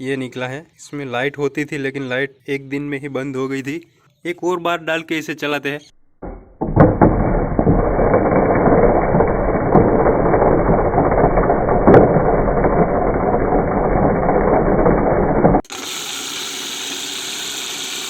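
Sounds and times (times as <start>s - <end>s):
mixer grinder clattering: 6.2s - 18.0s.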